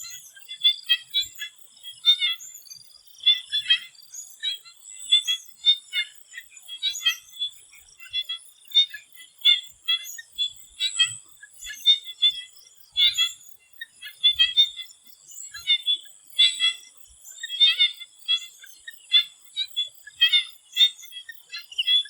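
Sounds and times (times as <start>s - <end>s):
frogs croaking: 0.0s - 22.0s.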